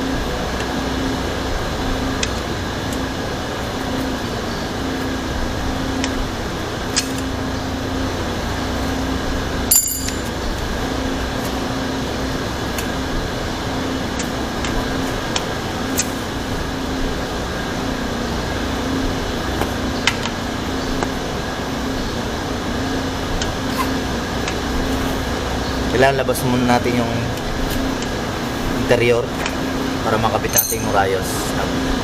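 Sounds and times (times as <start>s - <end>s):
fan-like hum: 0.0s - 32.0s
metal clank: 9.7s - 10.4s, 30.4s - 31.0s.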